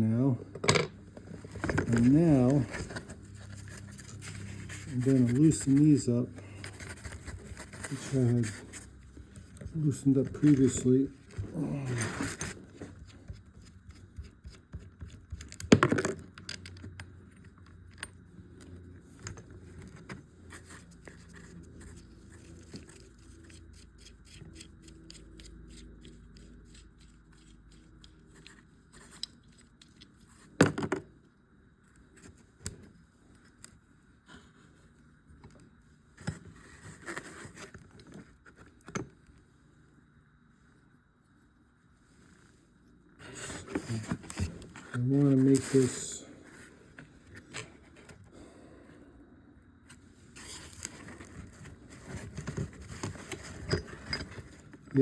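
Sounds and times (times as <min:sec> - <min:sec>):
metal tools clinking and scraping: 0:53.0 - 0:55.0.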